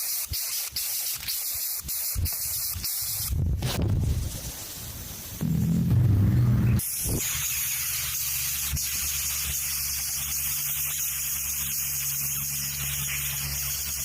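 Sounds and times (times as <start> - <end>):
steady hiss: 0.0 - 14.0
faint low hum: 5.4 - 6.8
loud low drone: 5.4 - 7.2.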